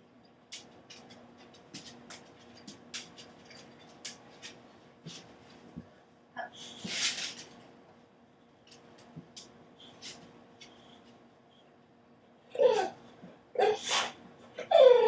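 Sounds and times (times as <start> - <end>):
dog claws clicking on hard floor: 0.5 - 5.3.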